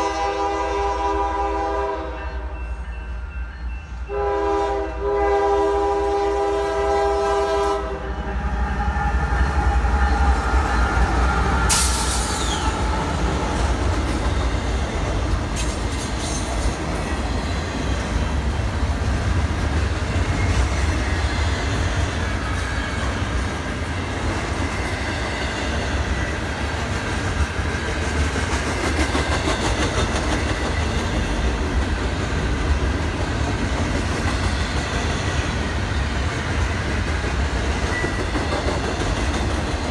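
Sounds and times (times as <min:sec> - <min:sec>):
train horn: 0:00.0 - 0:02.6, 0:04.1 - 0:13.6
train rumble and rail noise: 0:00.0 - 0:39.9
high screech: 0:08.4 - 0:13.3.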